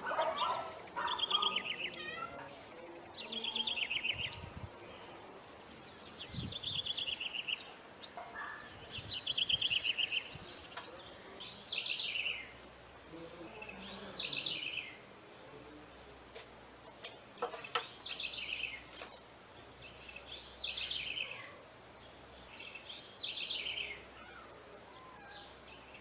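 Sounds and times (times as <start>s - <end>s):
bird singing high trills: 0.0s - 2.4s, 5.8s - 10.8s, 11.4s - 12.6s.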